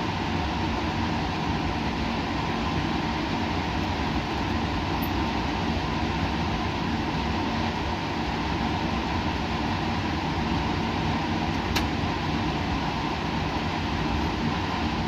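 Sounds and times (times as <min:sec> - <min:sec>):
machinery and ventilation hum: 0:00.0 - 0:15.0
small click: 0:11.7 - 0:11.9.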